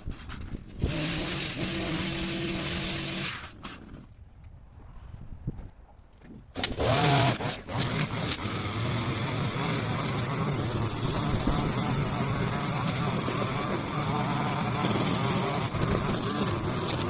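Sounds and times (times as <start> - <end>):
strimmer engine running: 0.8 - 3.5, 6.6 - 17.0.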